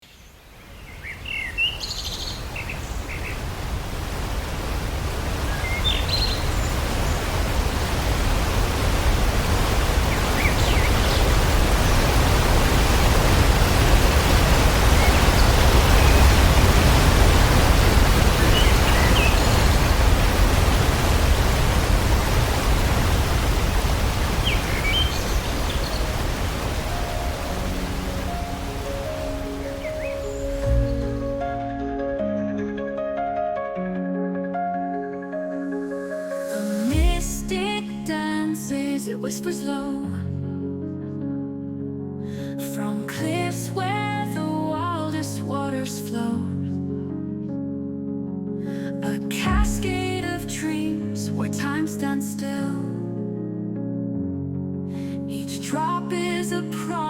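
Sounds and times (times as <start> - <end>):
birds chirping: 0.0 - 21.8, 22.8 - 31.5
waterfall rushing: 1.0 - 31.9, 36.3 - 38.7, 49.4 - 51.0.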